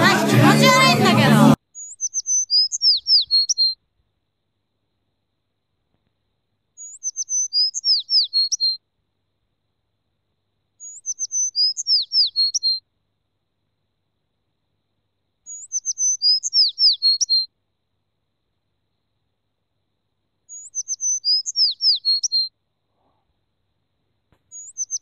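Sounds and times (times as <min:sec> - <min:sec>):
bird song of high chirps: 0:01.7 - 0:03.8, 0:06.8 - 0:08.8, 0:10.8 - 0:12.8, 0:15.5 - 0:17.5, 0:20.5 - 0:22.5, 0:24.5 - 0:25.0.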